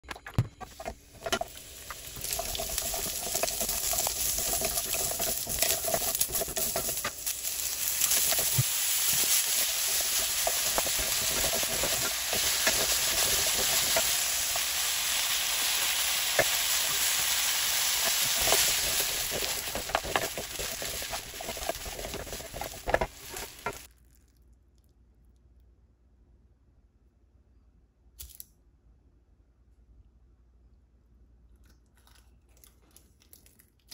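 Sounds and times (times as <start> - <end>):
utensil tapping and scraping pan: 0.5 - 23.9
food sizzling in a frying pan: 0.8 - 23.9.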